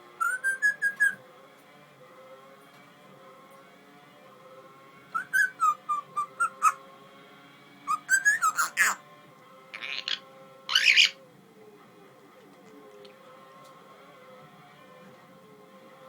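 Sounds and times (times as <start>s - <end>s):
parrot whistling: 0.2s - 1.2s, 5.2s - 6.8s, 7.9s - 9.0s, 9.8s - 11.2s
parrot raspy calls: 5.2s - 6.8s, 7.9s - 9.0s, 9.8s - 11.2s.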